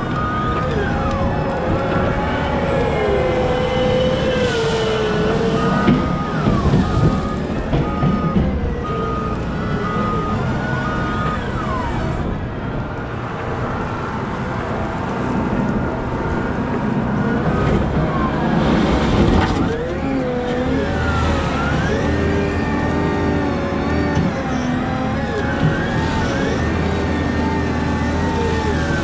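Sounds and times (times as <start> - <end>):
reverse alarm beeping: 0.0 - 12.3
diesel engine revving with whines: 0.0 - 29.0.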